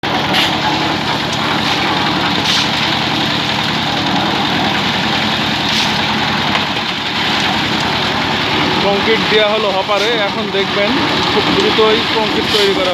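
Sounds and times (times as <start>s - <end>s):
concrete mixer engine running: 0.0s - 12.9s.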